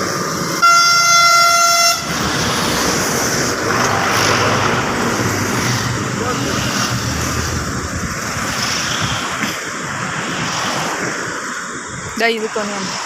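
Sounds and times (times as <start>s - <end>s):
steady rushing noise: 0.0s - 13.0s
vehicle horn: 0.6s - 2.2s.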